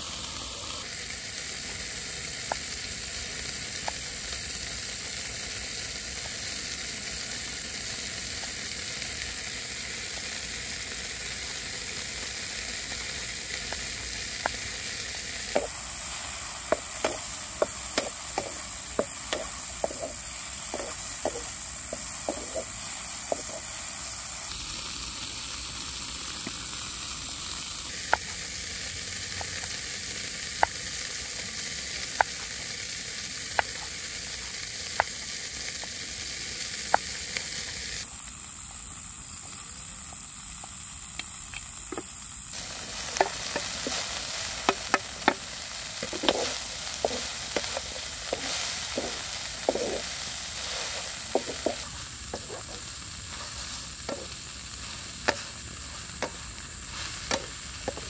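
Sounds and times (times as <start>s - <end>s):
grasshoppers sizzling in a wok: 0.0s - 58.0s
spatula scraping a pan: 14.4s - 23.8s, 42.8s - 58.0s.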